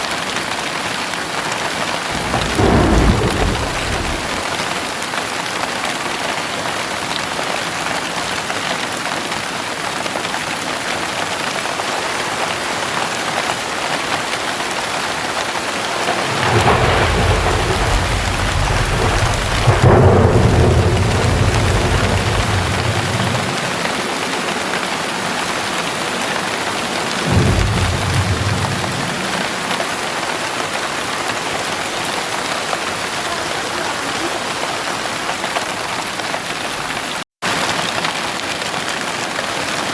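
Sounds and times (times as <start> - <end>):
heavy rain falling: 0.0 - 39.9
thunder rumbling: 2.0 - 5.2, 15.4 - 33.4.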